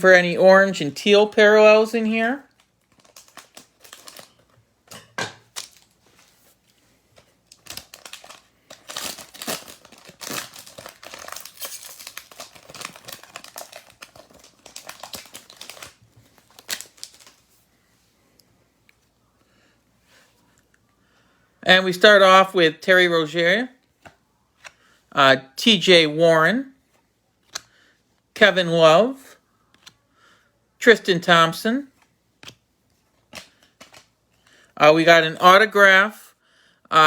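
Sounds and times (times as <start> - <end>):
plastic wrapper crinkling: 2.4 - 4.6, 5.4 - 6.4, 7.2 - 17.6.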